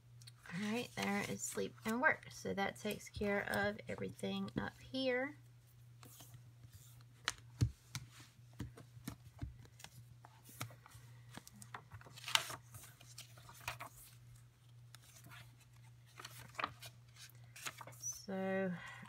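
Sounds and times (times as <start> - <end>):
paper scratching and rustling: 11.5 - 14.2, 15.0 - 18.1.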